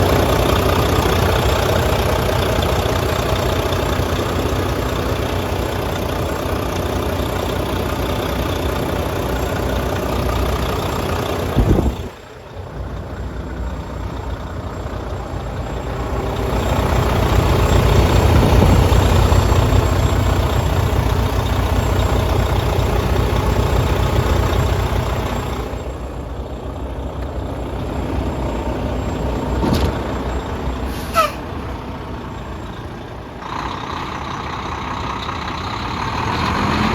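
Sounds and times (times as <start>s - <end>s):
diesel truck engine idling: 0.0s - 36.9s.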